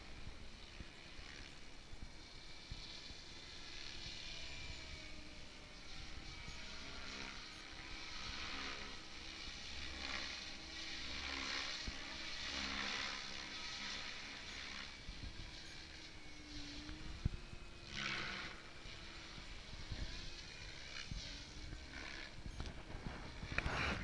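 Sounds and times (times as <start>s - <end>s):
model helicopter whining and hissing: 0.0s - 24.0s.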